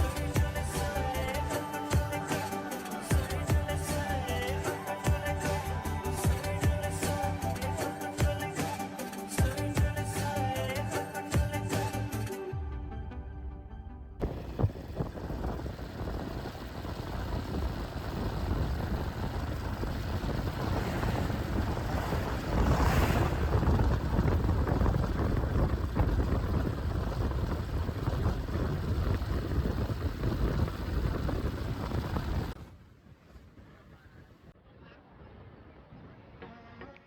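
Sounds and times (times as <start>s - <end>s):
motorcycle engine: 14.2s - 32.6s
road noise: 14.2s - 34.5s
wind buffeting microphone: 14.2s - 34.5s.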